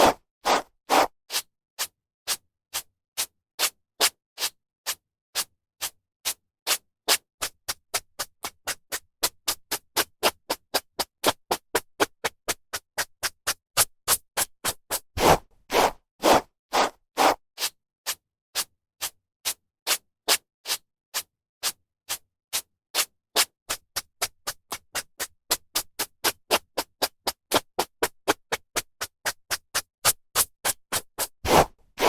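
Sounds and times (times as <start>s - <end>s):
hairbrush strokes through hair: 31.5s - 31.7s.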